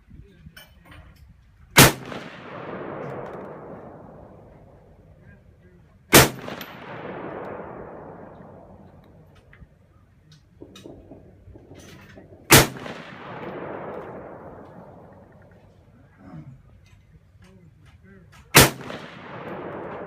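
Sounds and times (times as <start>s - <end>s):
rifle shots with rolling echo: 1.7s - 16.2s, 18.5s - 20.0s.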